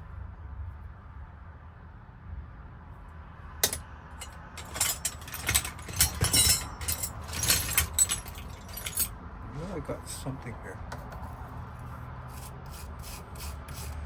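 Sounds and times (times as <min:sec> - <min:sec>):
metal tools clinking: 0:03.6 - 0:09.1.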